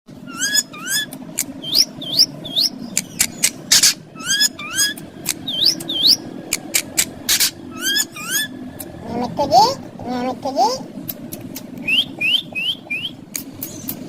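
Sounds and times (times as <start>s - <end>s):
parakeet squawking: 0.2s - 10.3s
sharp clicks: 2.9s - 4.0s, 4.9s - 7.5s, 11.0s - 11.9s, 13.3s - 14.0s.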